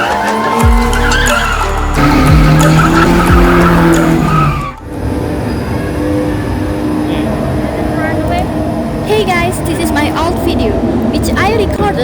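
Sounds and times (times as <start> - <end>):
tyres squealing on pavement: 0.0 - 4.9
background music: 0.0 - 5.6
car engine revving hard: 0.0 - 11.3.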